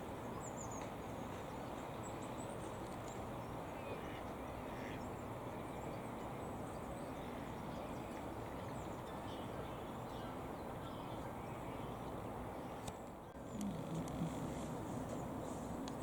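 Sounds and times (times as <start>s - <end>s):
outdoor background rush: 0.0s - 16.0s
faint bird calls: 12.6s - 15.1s.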